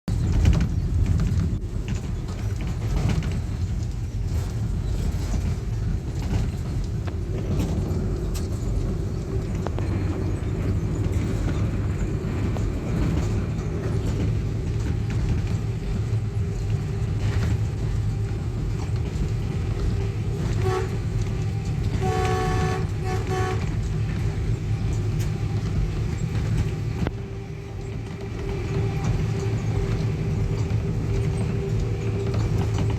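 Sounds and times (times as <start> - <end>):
locomotive engine rumbling: 0.1 - 32.9
locomotive horn: 19.4 - 25.8.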